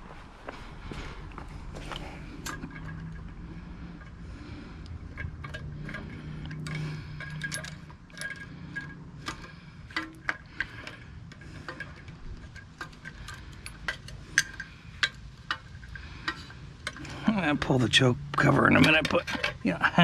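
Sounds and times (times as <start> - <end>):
metal tools and parts clinking: 1.8 - 20.0.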